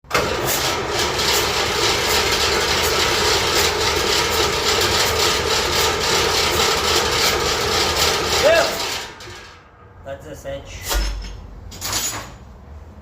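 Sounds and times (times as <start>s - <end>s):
engine running with rough clatter: 0.0s - 9.9s.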